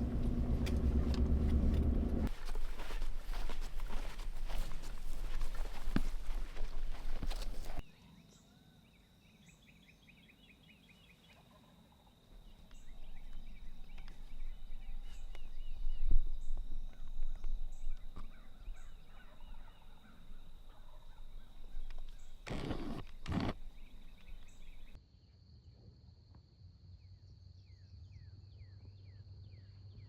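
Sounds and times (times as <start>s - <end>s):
low rustling: 0.0s - 7.8s
distant turkey gobbling: 12.8s - 22.6s.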